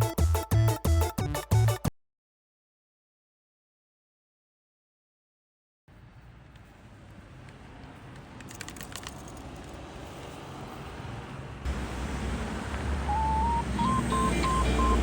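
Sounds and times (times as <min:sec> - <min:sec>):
faint outdoor background noise: 0:05.9 - 0:15.0
quick clicks: 0:08.2 - 0:09.8.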